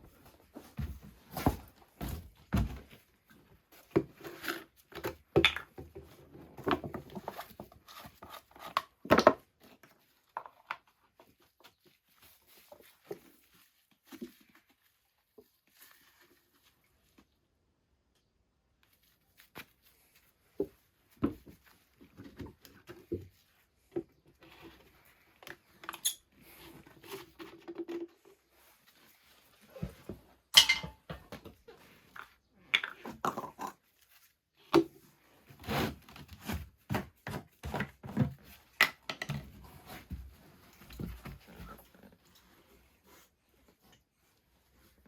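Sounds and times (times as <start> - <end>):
knocks and clunks of handling: 0.0 - 11.4, 20.5 - 28.7, 29.5 - 33.7, 36.1 - 42.6.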